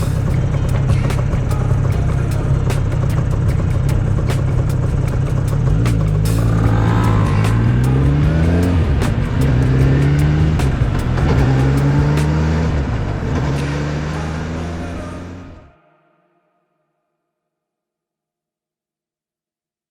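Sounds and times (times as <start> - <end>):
two-stroke motorcycle engine revving: 0.0 - 15.6.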